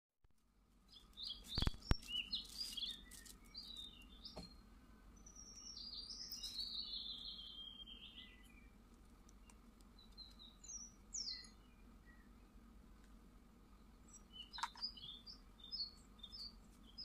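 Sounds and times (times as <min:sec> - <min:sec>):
birds chirping and tweeting: 0:00.5 - 0:17.0.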